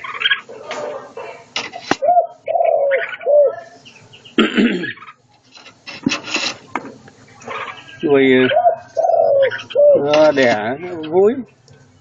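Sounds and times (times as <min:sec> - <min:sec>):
rustling: 0:00.0 - 0:02.2, 0:05.0 - 0:07.9
dove cooing: 0:00.0 - 0:05.7, 0:06.7 - 0:12.0.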